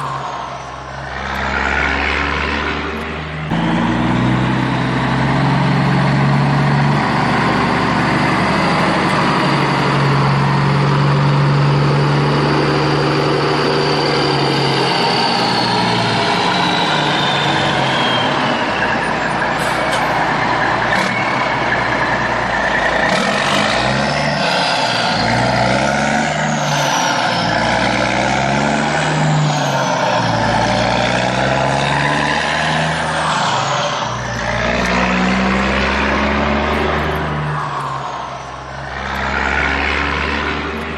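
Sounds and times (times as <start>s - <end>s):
heavy truck engine revving: 0.0s - 40.9s
high falling whistles: 10.6s - 19.6s, 28.8s - 31.7s, 32.5s - 39.4s.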